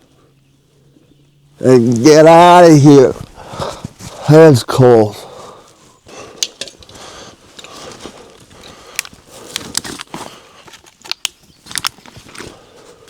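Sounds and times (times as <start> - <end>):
gear rustling: 5.5 - 13.0
sharp clicks and knocks: 6.4 - 7.0.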